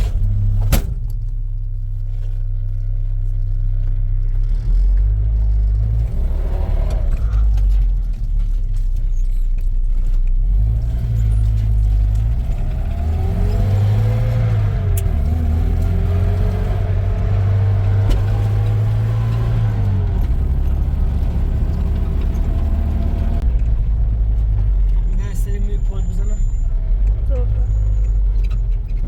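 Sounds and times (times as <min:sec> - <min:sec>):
vehicle engine running under load: 0:00.0 - 0:29.0
engine whine: 0:10.4 - 0:29.0.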